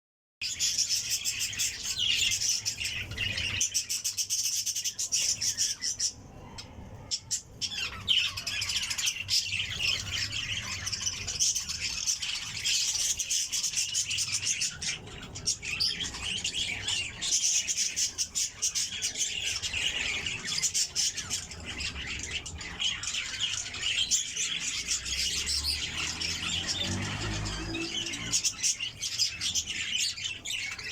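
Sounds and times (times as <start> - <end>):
many small birds chirping: 0.4 - 30.9.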